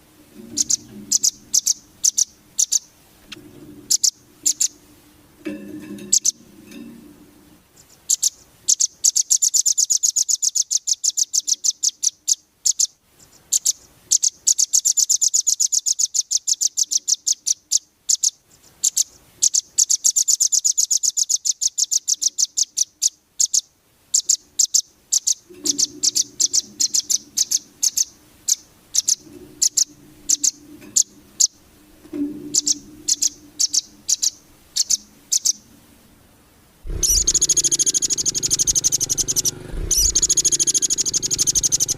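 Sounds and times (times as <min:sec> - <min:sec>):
faint low hum: 0:25.5 - 0:41.9
bird calling sharp chip notes: 0:36.9 - 0:41.9.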